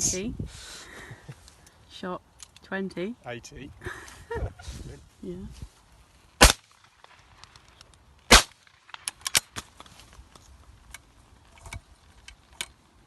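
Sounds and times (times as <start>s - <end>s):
shotgun shot: 6.4s - 6.7s, 8.3s - 8.7s.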